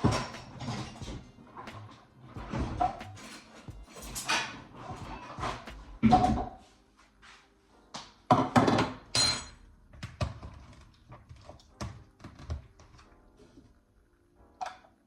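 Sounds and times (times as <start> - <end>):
bowls and utensils clattering: 0.0 - 6.6, 8.3 - 10.6.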